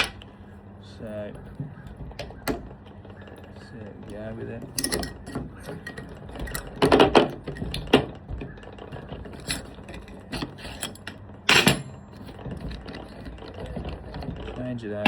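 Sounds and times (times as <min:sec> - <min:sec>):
metal parts clinking: 0:04.1 - 0:08.2, 0:08.8 - 0:14.6.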